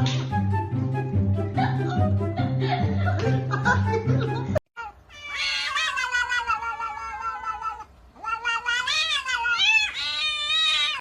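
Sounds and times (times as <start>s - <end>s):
cat yowling: 4.8s - 11.0s.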